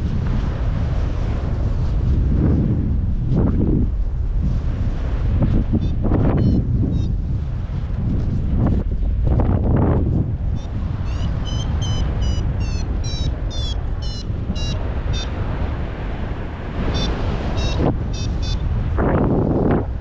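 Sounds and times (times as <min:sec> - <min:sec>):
wind rushing over microphone: 0:00.0 - 0:20.0
variometer beeping: 0:05.8 - 0:07.1, 0:10.6 - 0:15.3, 0:16.9 - 0:18.6.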